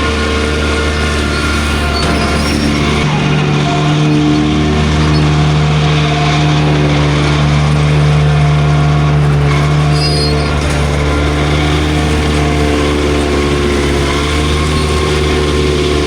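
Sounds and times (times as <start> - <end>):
tractor engine under load: 0.0 - 16.0.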